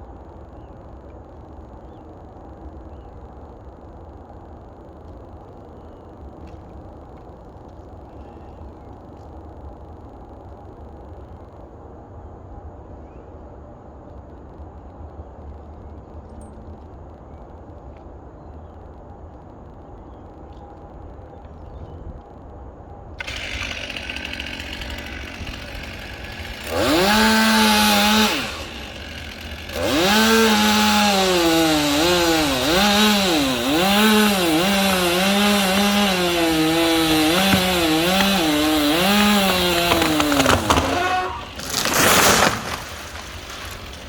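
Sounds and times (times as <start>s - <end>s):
chainsaw cutting wood: 23.2s - 44.0s.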